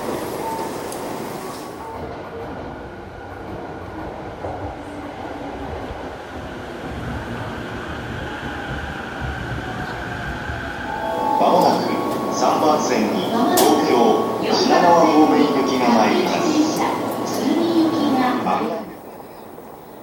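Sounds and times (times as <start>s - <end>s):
train rumbling: 0.0s - 20.0s
faint high whine: 10.8s - 20.0s.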